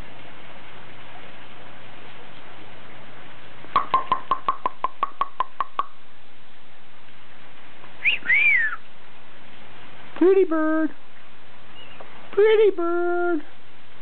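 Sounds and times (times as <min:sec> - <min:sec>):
bird whistled chirp: 0:08.0 - 0:08.8, 0:11.7 - 0:12.0.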